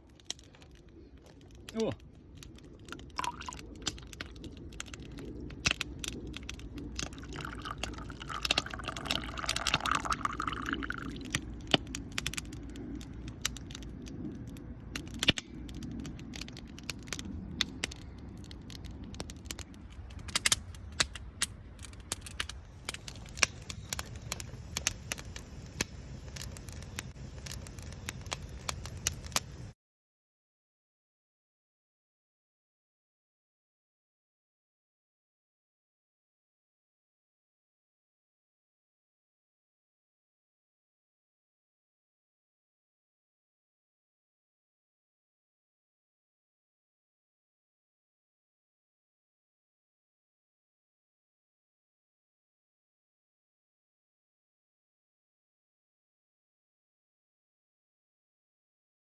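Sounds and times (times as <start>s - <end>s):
campfire crackling: 0.0s - 29.8s.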